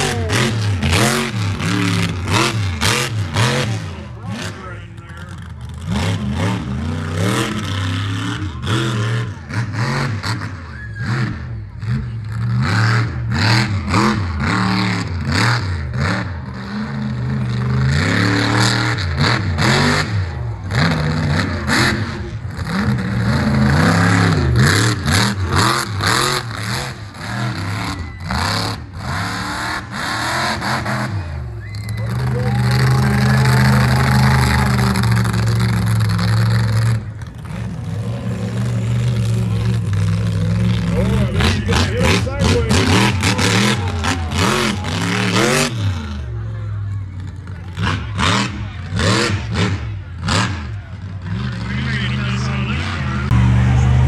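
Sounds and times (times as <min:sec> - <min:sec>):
truck engine revving: 0:00.0 - 0:54.0.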